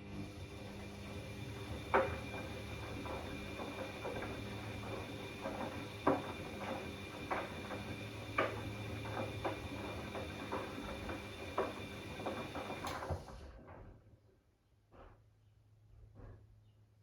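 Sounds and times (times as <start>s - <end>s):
washing machine motor hum: 0.0s - 13.4s.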